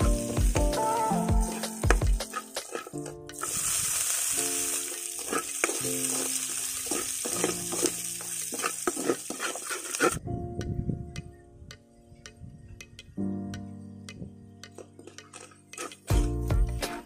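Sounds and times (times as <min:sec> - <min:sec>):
food sizzling in a wok: 0:00.0 - 0:10.2
metal ladle scraping a pan: 0:01.5 - 0:10.2, 0:15.3 - 0:16.2.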